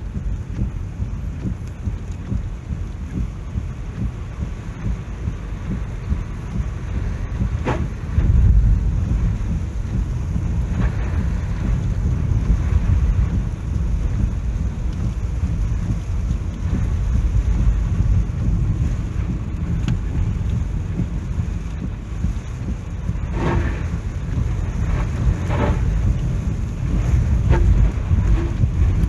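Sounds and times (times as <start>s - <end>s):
storm wind and rain rumble: 0.0s - 29.0s.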